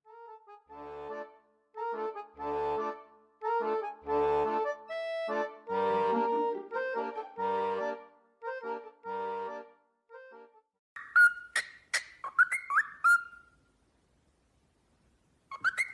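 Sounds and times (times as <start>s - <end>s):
accordion tune: 0.0s - 10.7s.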